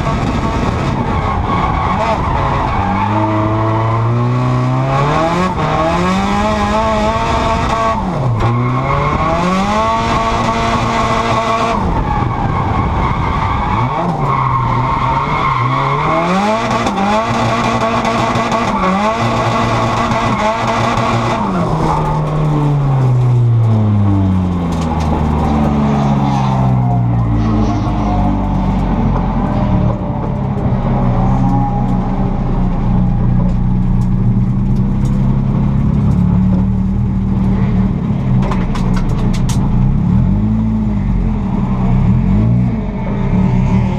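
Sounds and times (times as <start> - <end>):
car engine running: 16.9 - 43.9.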